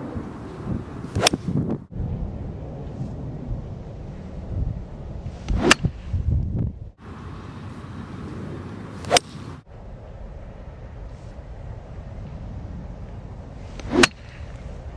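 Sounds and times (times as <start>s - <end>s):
wind rumble on microphone: 0.0s - 14.9s
golf club hitting ball: 1.1s - 1.7s, 8.7s - 9.6s.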